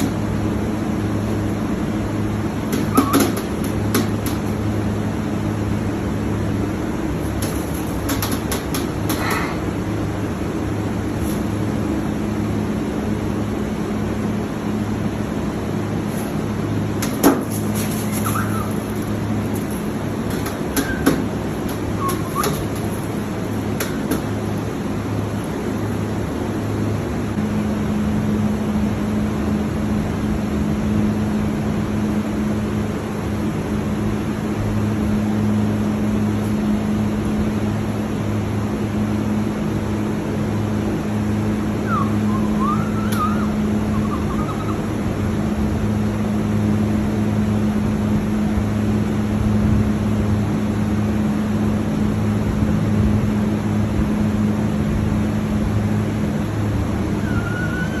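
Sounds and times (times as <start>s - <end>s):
low machine hum with rushing: 0.0s - 58.0s
high chirping: 18.0s - 19.2s, 20.4s - 22.9s, 41.8s - 44.9s.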